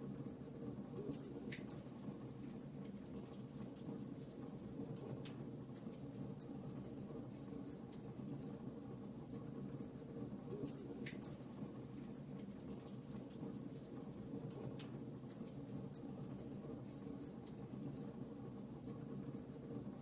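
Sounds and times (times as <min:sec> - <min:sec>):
wood fire crackling and popping: 0:09.3 - 0:18.1.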